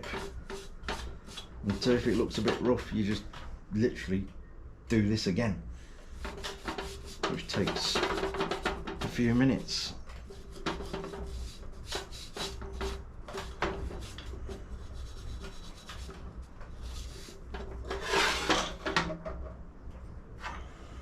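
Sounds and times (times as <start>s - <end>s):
scrubbing paste onto metal: 0.0s - 3.5s, 6.0s - 19.2s.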